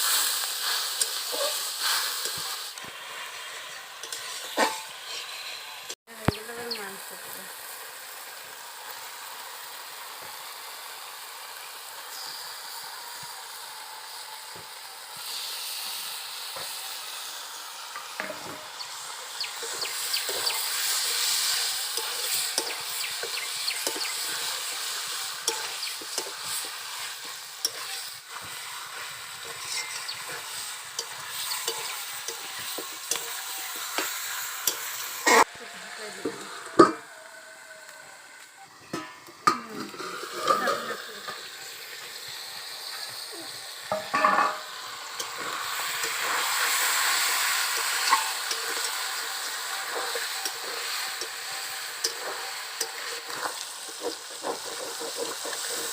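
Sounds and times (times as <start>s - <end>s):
spatula scraping a pan: 0.0s - 5.6s, 18.0s - 18.6s, 19.6s - 35.5s, 38.9s - 41.1s, 43.9s - 55.9s
food sizzling in a pan: 0.0s - 55.9s.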